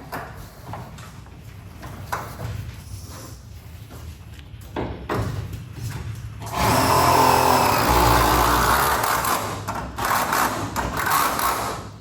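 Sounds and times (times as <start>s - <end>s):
power tool motor running: 6.4s - 11.7s.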